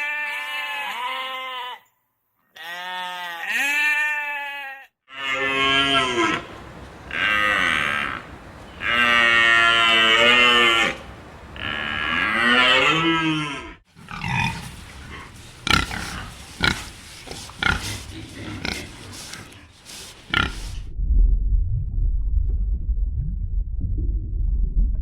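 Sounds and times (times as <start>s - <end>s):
cattle mooing: 5.1s - 14.4s.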